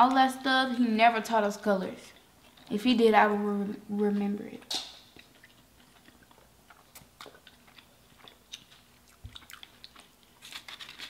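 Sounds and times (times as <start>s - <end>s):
faint chewing: 2.0s - 2.8s, 4.6s - 11.0s.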